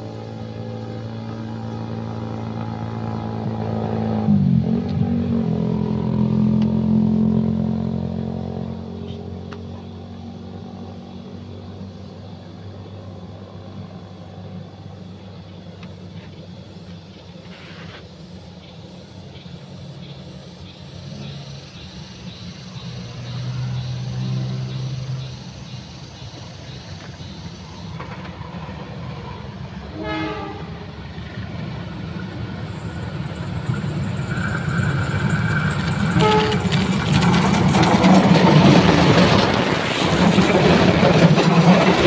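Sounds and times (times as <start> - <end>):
locomotive engine rumble: 0.0 - 42.0
train wheel noise: 25.3 - 42.0
train horn blast: 29.9 - 31.0, 36.0 - 37.3.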